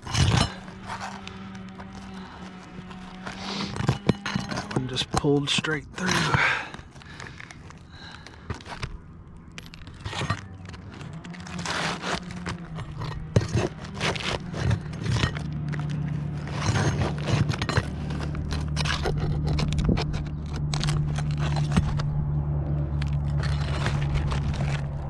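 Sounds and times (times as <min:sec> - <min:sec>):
roof shingles scraping and crunching: 0:00.0 - 0:25.0
steady low hum: 0:00.0 - 0:25.0.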